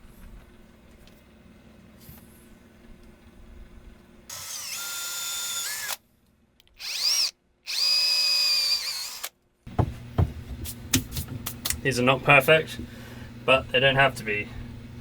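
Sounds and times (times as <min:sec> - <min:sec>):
power drill boring into wood: 0:04.3 - 0:06.0, 0:06.8 - 0:09.3.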